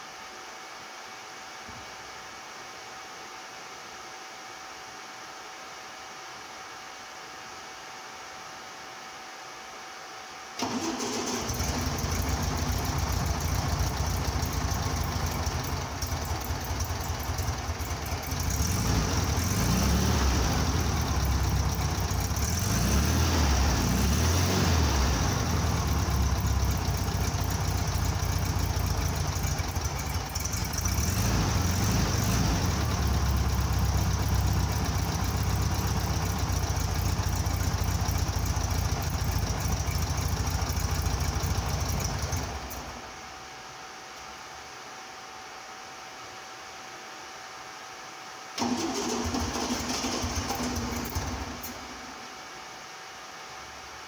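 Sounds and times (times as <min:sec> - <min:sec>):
car engine starting and idling: 0:10.6 - 0:43.2, 0:48.6 - 0:52.3.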